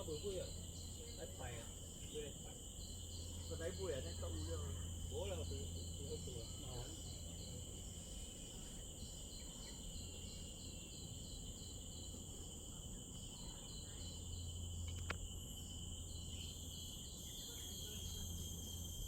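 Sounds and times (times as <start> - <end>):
fast insect chirping: 0.0 - 19.0
insects droning: 0.0 - 19.0
faint click: 14.8 - 15.2.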